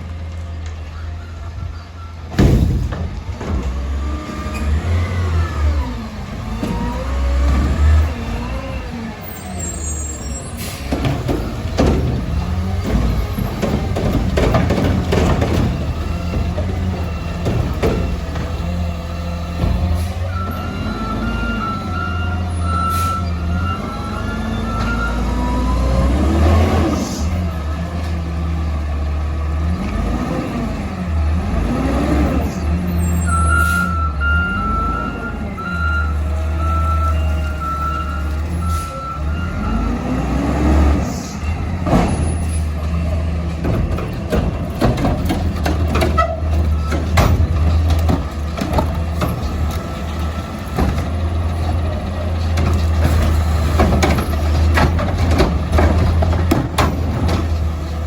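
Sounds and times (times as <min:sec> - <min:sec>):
reversing alarm beeping: 0:00.8 - 0:02.4, 0:20.3 - 0:25.8, 0:33.0 - 0:40.2
diesel truck engine revving: 0:02.1 - 0:58.0
metal knocks and clanks: 0:02.3 - 0:04.0, 0:10.7 - 0:20.1, 0:41.8 - 0:58.0.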